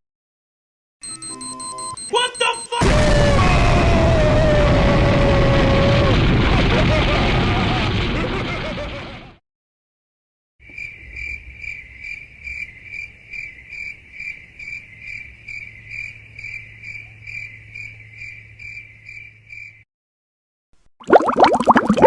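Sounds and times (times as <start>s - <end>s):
crickets chirping: 10.6s - 19.8s.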